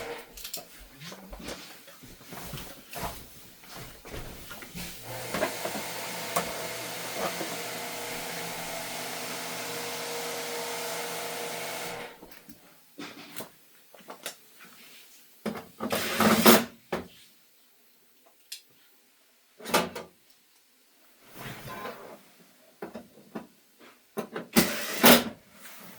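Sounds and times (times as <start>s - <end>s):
electric motor whirring: 5.0s - 12.2s.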